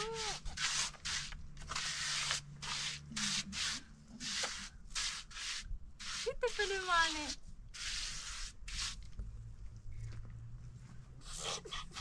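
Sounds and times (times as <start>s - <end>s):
rough scraping strokes: 0.0s - 9.2s.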